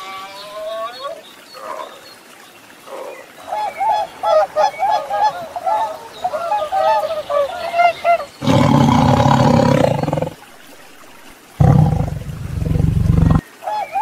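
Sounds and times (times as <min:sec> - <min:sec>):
swans and geese honking: 0:03.4 - 0:08.4
tiger roaring: 0:08.4 - 0:10.4, 0:11.6 - 0:13.4.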